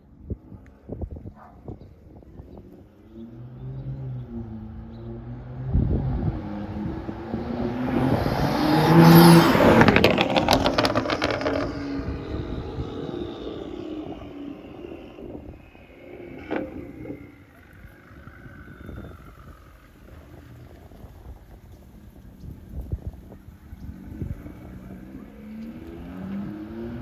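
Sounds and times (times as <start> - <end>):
exhaust crackles: 2.1 - 27.0
car driving past: 2.6 - 21.1, 23.9 - 27.0.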